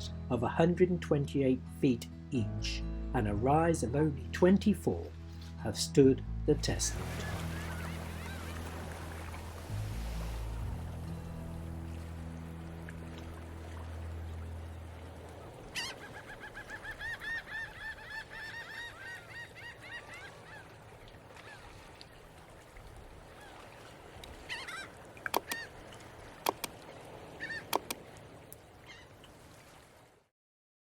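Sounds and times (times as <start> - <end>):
background music: 0.0 - 15.7
geese honking: 7.0 - 9.0
sharp clicks: 25.3 - 25.6, 26.5 - 26.8, 27.7 - 28.0.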